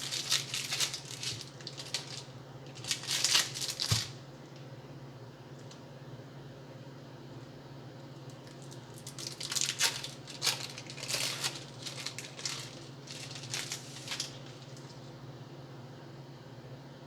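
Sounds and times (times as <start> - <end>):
plastic packaging crinkling: 0.0 - 4.3, 8.5 - 15.1.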